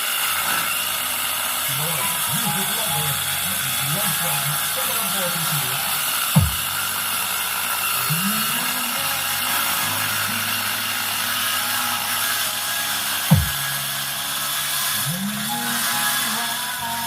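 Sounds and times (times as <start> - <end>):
steady hiss: 0.0 - 17.0
dance music over loudspeaker: 1.8 - 6.8, 13.3 - 13.9.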